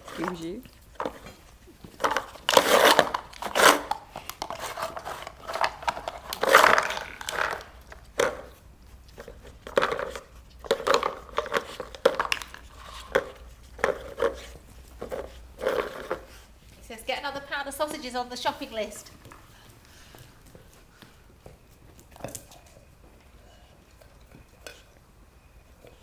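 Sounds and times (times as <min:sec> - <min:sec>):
dog crinkling and tearing paper: 0:00.0 - 0:08.6, 0:09.2 - 0:16.5.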